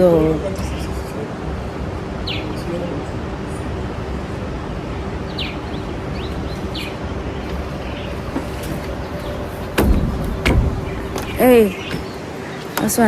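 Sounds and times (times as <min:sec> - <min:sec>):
birds chirping: 0:00.0 - 0:13.0
sharp knock: 0:09.7 - 0:12.0.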